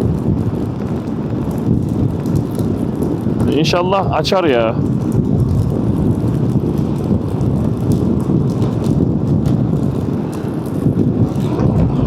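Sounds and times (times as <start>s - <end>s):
wind buffeting microphone: 0.0s - 12.0s
motorcycle engine rumble: 4.6s - 12.0s.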